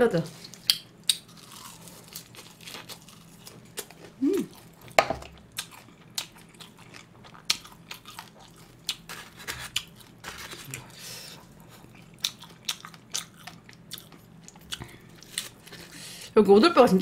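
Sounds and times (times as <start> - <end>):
person humming: 4.2 - 4.5.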